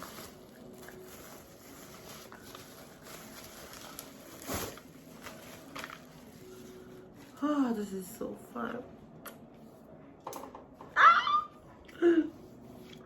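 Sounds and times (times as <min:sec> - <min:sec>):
packaging rustling: 0:00.0 - 0:07.1.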